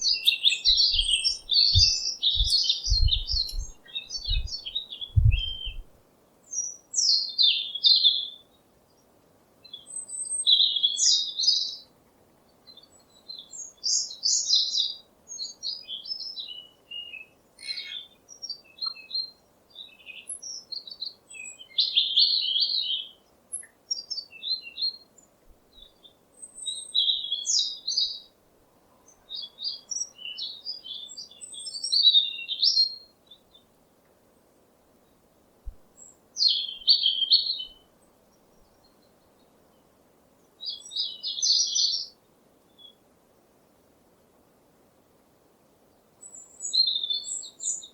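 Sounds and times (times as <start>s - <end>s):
birds chirping and singing: 0.0s - 5.9s.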